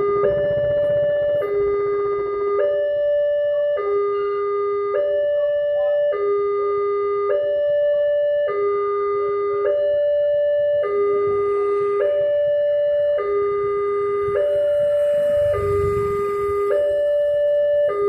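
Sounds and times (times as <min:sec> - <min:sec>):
level crossing two-tone alarm: 0:00.0 - 0:18.0.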